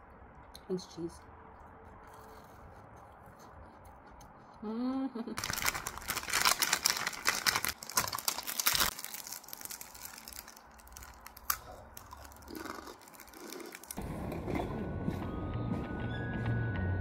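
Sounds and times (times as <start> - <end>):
crunchy snack being eaten: 5.4 - 14.0.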